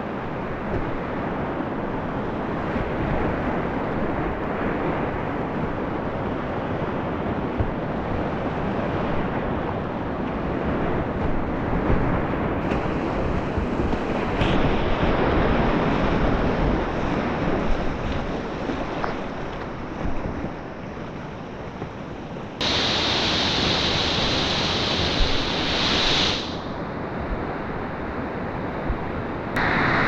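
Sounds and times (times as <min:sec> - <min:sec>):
whitewater rushing: 0:22.6 - 0:26.6, 0:29.6 - 0:30.0.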